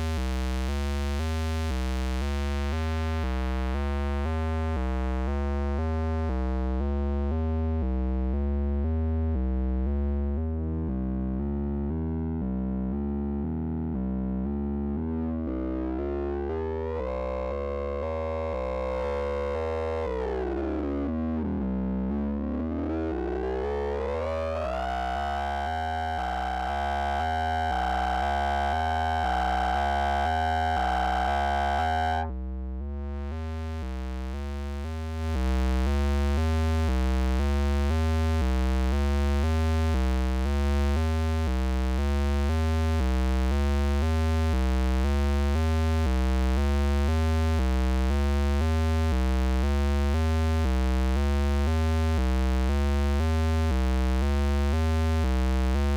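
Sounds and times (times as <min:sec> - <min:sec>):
synthesizer bass sequence: 0:25.0 - 0:55.9
synth lead tone gliding up: 0:26.2 - 0:32.3.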